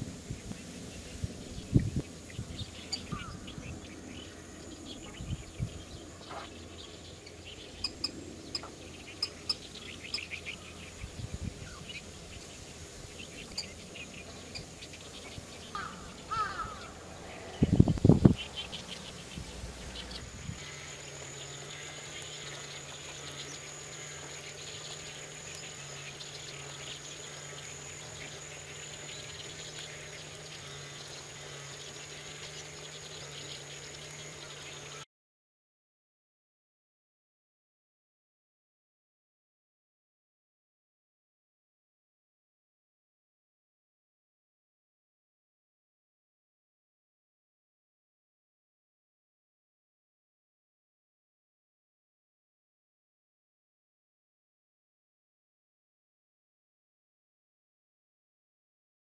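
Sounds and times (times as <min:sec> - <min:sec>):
low hum: 0:00.0 - 0:34.7
bird chirps: 0:01.6 - 0:35.0.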